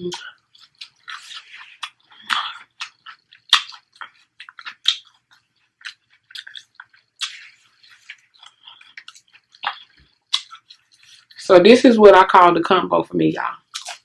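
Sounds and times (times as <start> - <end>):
sharp mouth clicks: 0.0 - 10.8
chewing and crunching: 0.0 - 11.4, 13.6 - 14.0
wet mouth smacks: 0.1 - 11.2, 13.7 - 14.0.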